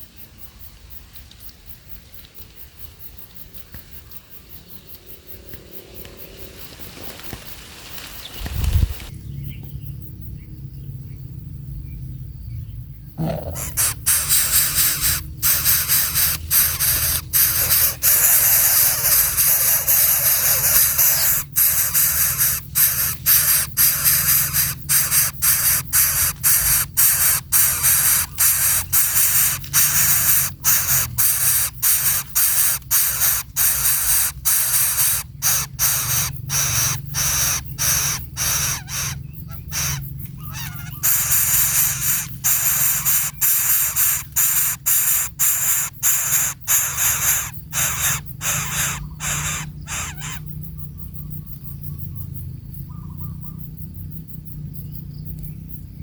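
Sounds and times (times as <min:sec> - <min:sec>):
faint bird chirps: 0:08.3 - 0:53.9
baby bird hissing begging calls: 0:13.2 - 0:50.4.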